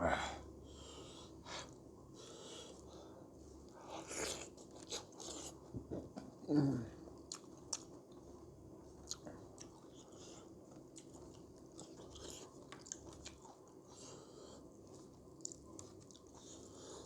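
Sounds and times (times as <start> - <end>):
person chewing food: 4.0 - 6.2, 7.2 - 8.2, 8.9 - 17.0.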